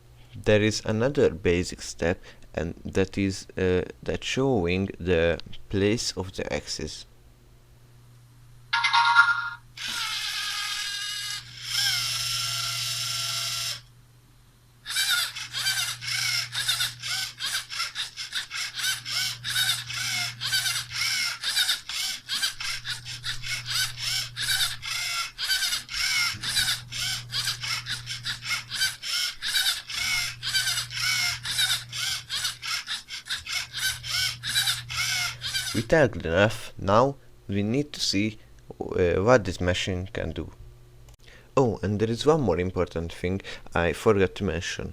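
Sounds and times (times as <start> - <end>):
short tone: 8.8 - 9.6
motor running: 9.8 - 13.9, 14.8 - 36.0
even ratcheting clicks: 14.9 - 35.9.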